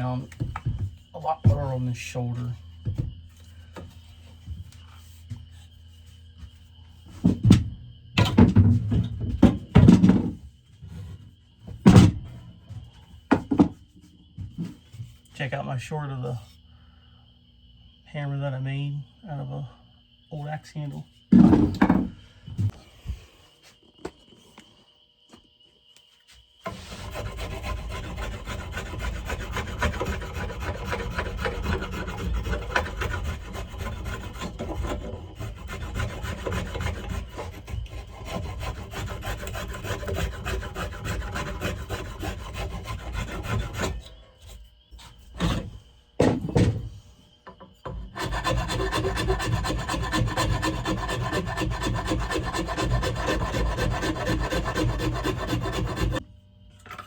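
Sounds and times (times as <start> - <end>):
rasp scraping wooden handle: 26.6 - 46.8, 47.8 - 56.2.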